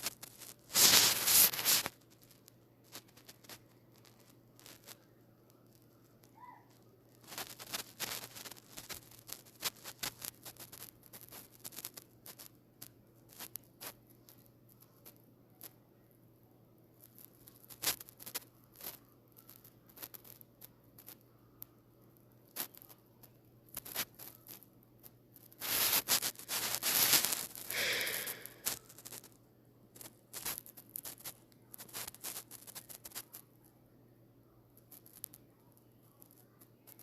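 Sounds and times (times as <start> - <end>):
rustling and scraping clicks: 0.0 - 15.2.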